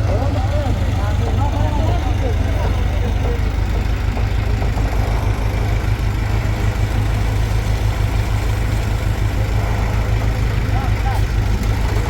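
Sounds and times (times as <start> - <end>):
heavy engine throbbing: 0.0 - 12.0.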